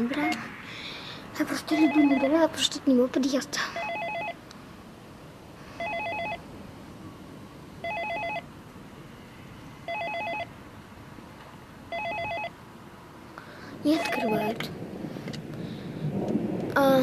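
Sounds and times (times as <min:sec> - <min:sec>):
intercom warbling electronic ring: 0:14.0 - 0:14.5.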